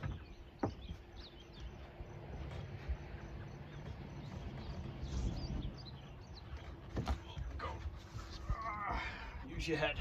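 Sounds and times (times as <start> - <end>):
wooden knocks: 0.0 - 1.0
birds chirping faintly: 0.0 - 10.0.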